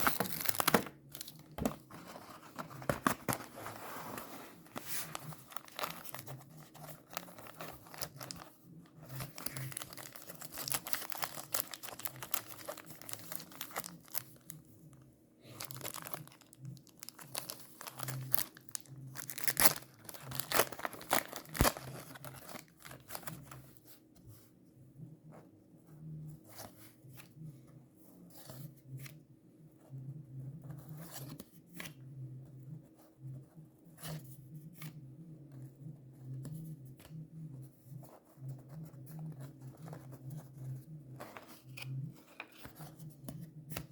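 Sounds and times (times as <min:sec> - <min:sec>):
wrapper tearing and crinkling: 0:00.0 - 0:01.5, 0:05.2 - 0:06.3, 0:09.2 - 0:14.4, 0:15.6 - 0:23.3
cards clicking and rustling: 0:00.0 - 0:03.8, 0:17.1 - 0:23.4.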